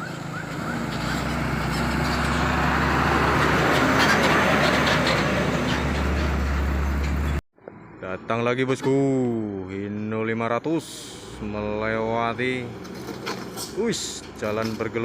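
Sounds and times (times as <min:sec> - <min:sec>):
truck diesel engine driving past: 0:00.0 - 0:07.4.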